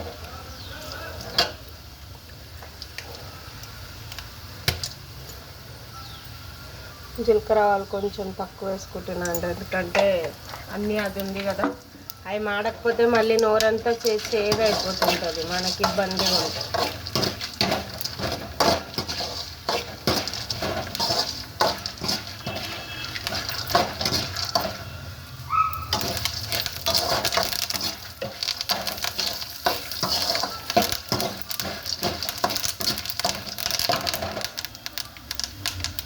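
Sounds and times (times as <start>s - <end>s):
seeds sizzling in oil: 0.0s - 36.0s
spatula scraping a pan: 13.2s - 25.0s, 25.9s - 34.6s.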